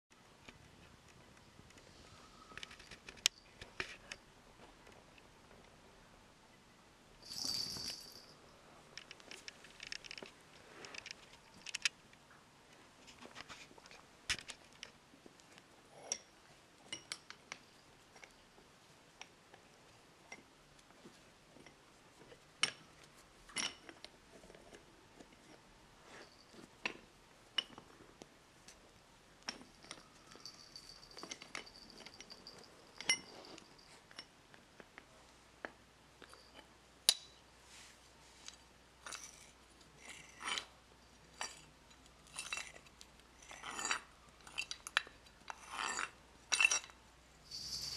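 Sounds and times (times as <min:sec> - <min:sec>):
high steady ringing tone: 0:07.2 - 0:08.5, 0:47.5 - 0:47.9
metal clinks and knocks: 0:07.2 - 0:10.3, 0:29.4 - 0:34.4, 0:39.0 - 0:47.9.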